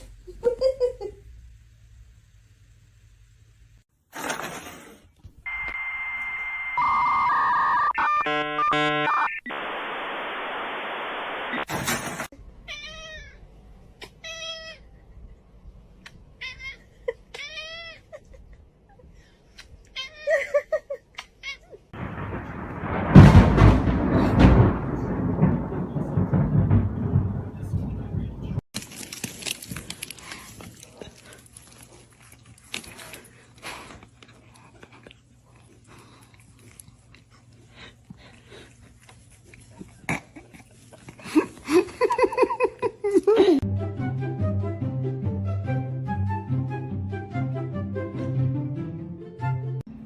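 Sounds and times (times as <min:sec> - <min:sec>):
electronic tones: 0:05.5 - 0:11.7
loud noisy rumble: 0:22.0 - 0:28.6.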